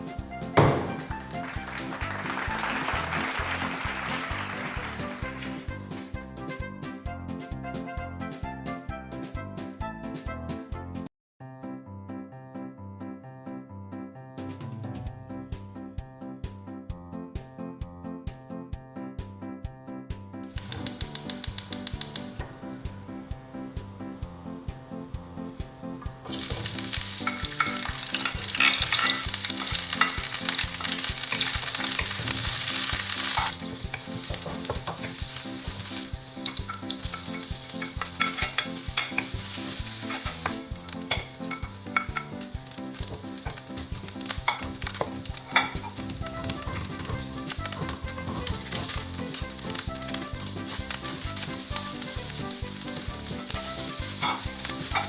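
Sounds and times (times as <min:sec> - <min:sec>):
food sizzling in oil: 0:00.1 - 0:06.1, 0:20.5 - 0:55.0
stirring clicks: 0:20.5 - 0:22.6, 0:26.0 - 0:55.0.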